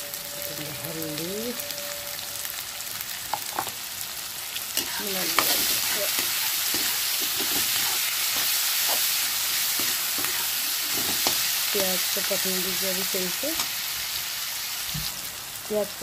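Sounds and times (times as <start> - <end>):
food sizzling in hot oil: 0.0 - 16.0
spatula scraping a steel pan: 4.8 - 11.4.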